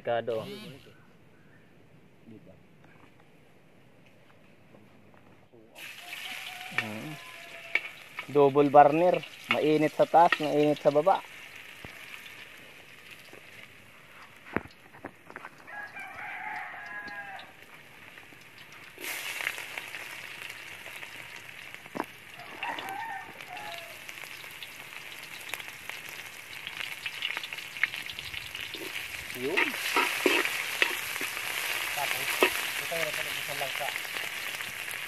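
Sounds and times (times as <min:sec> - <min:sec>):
shallots sizzling in hot oil: 0:05.8 - 0:35.0
rooster crowing: 0:05.9 - 0:08.1, 0:15.6 - 0:17.7, 0:22.4 - 0:24.1.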